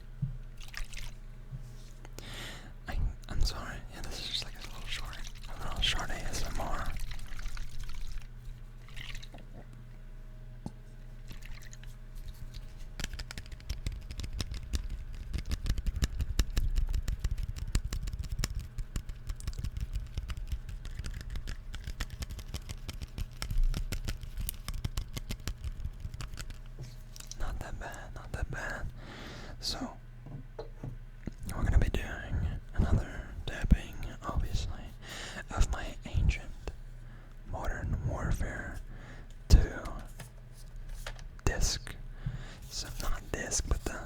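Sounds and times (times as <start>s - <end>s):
steady low hum: 0.0s - 44.0s
wet mouth clicks and smacks: 11.5s - 28.4s.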